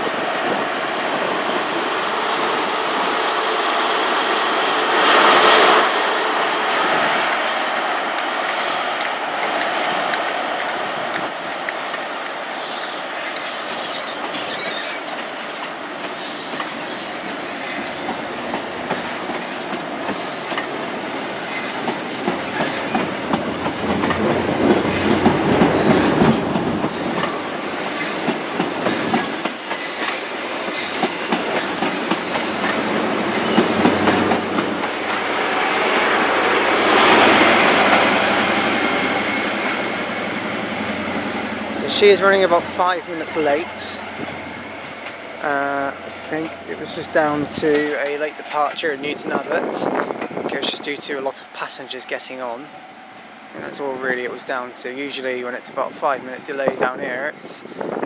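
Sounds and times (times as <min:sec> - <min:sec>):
diesel train pulling out: 0:00.0 - 0:58.0
wheels clicking over rail joints: 0:07.1 - 0:35.2.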